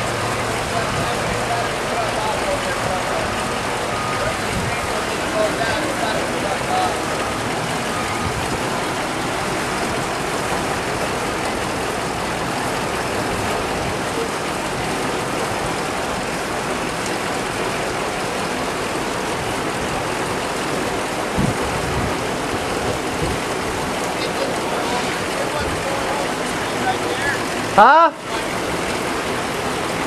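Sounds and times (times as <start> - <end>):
rain: 0.0 - 30.0
rushing floodwater: 0.0 - 30.0.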